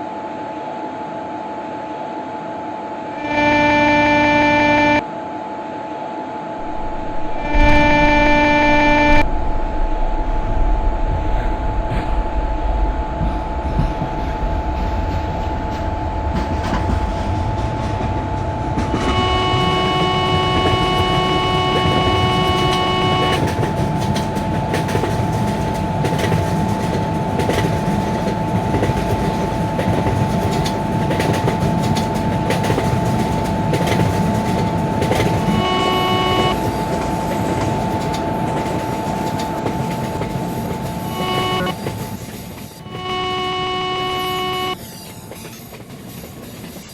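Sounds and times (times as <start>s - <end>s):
locomotive horn: 3.2s - 5.1s, 6.6s - 9.4s, 18.1s - 44.8s
train wheels rumbling on rail: 6.6s - 46.9s.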